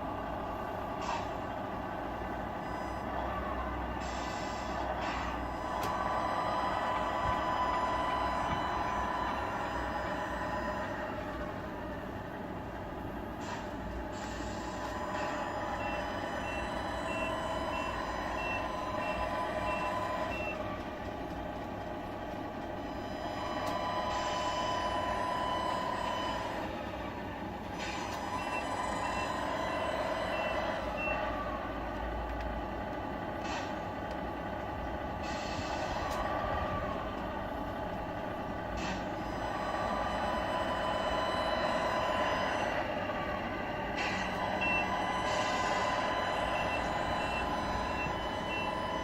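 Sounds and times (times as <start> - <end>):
simulated diesel engine running: 0.0 - 49.0
air brake hisses: 1.0 - 1.5, 4.0 - 11.3, 13.4 - 16.4, 33.4 - 33.8, 35.2 - 36.5, 38.8 - 40.0
reversing beeper beeps: 14.2 - 20.7, 27.8 - 31.4, 38.8 - 49.0.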